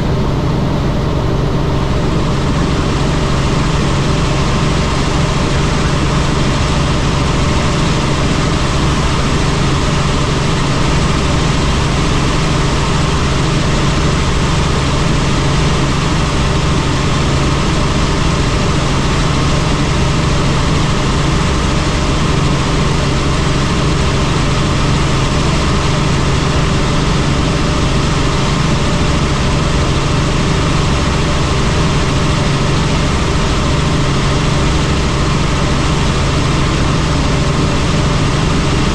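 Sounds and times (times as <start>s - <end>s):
helicopter engine and rotors: 0.0s - 38.9s.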